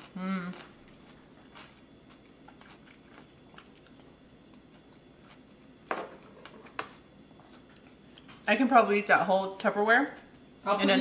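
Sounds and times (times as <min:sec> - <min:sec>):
person chewing: 0:00.0 - 0:08.4.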